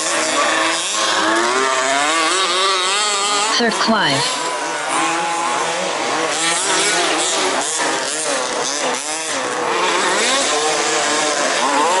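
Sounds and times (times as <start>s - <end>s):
rc car engines revving: 0.0s - 3.7s, 4.3s - 12.0s.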